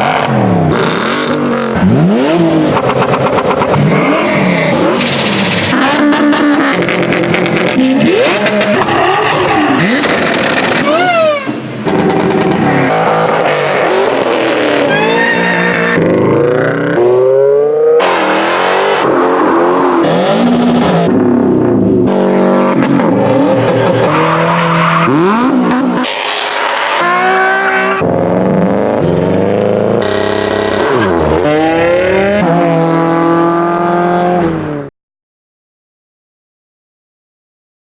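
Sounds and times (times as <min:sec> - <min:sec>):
car engines revving: 0:00.0 - 0:34.9
tyre squeal: 0:07.8 - 0:11.6, 0:14.1 - 0:16.0.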